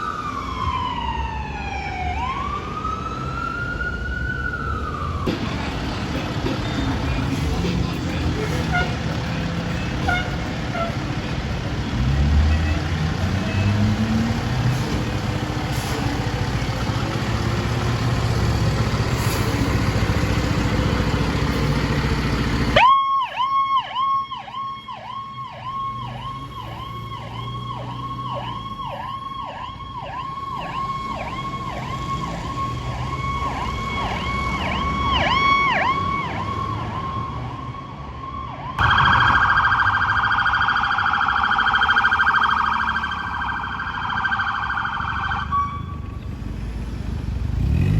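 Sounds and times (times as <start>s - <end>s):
low vehicle rumble: 2.2s - 22.8s, 38.8s - 47.9s
high warbling siren: 22.7s - 46.1s
siren yelping: 22.8s - 46.0s.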